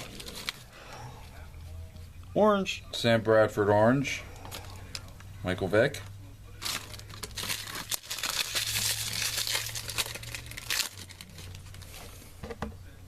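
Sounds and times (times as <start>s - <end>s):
wrapper crinkling: 0.0s - 0.6s, 6.6s - 12.0s.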